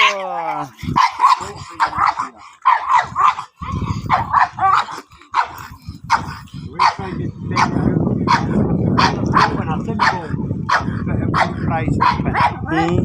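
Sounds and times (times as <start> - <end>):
puppy barking and yipping: 2.0 - 3.4, 4.1 - 7.0.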